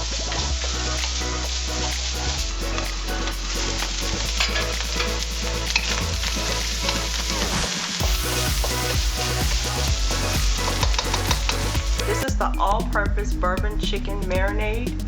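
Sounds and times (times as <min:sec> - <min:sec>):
rice sizzling in a wok: 0:03.8 - 0:11.7.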